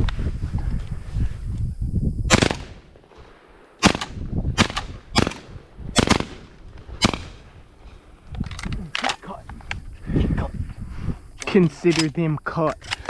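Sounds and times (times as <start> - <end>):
shotgun blasts: 2.3 - 3.0, 3.8 - 7.5.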